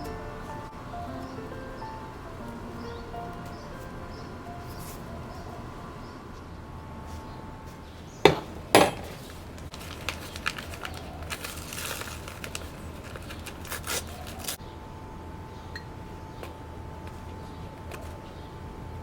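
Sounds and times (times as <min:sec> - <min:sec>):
faint steady hum: 0:00.0 - 0:19.0
crinkling with light clicks: 0:09.0 - 0:14.6.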